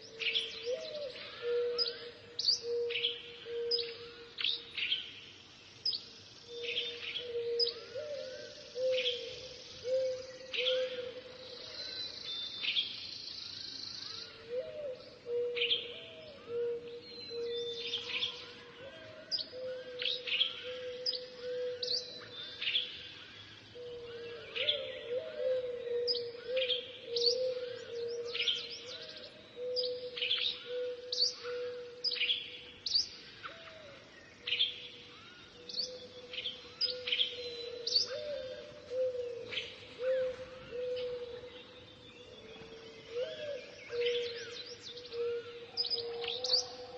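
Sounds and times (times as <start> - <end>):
small birds chirping: 0.0 - 14.4, 26.1 - 46.9.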